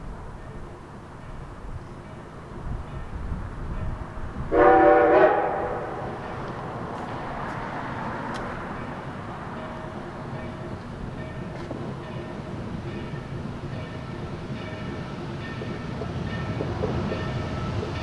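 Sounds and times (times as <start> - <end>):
train rumbling on rails: 0.0 - 18.0
steam locomotive whistle: 4.5 - 6.2.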